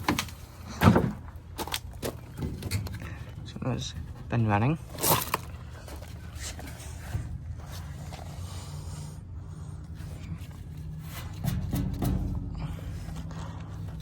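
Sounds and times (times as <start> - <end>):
air conditioner humming: 0.0 - 14.0
low rumble: 10.2 - 14.0.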